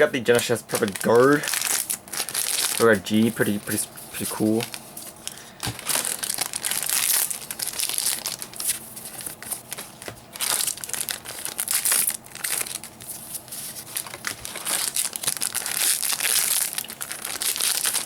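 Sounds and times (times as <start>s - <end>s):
foil packs tearing and crinkling: 0.3s - 18.0s.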